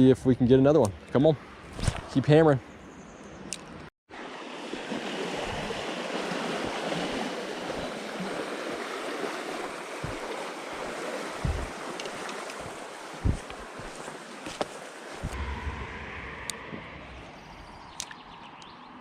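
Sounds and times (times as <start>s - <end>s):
creek water rushing: 4.1s - 15.4s
short low bumps: 11.4s - 11.8s.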